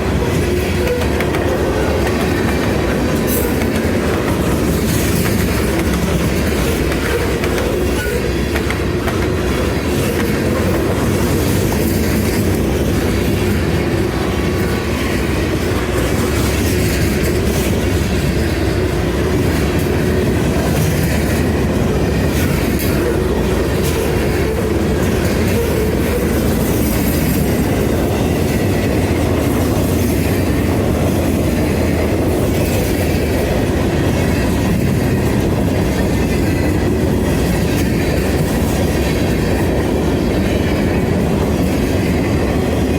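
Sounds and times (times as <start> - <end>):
freight train wheels rumbling: 0.0 - 42.9.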